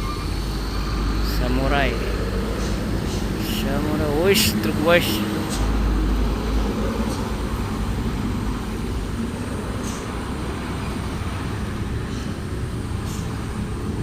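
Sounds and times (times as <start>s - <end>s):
truck diesel engine running: 0.0s - 14.0s.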